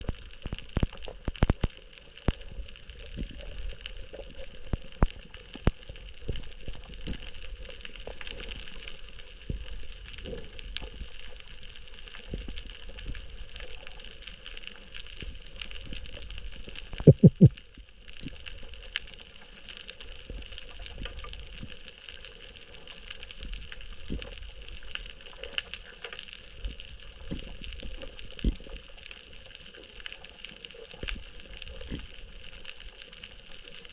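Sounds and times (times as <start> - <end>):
sharp clicks: 17.0 - 17.5.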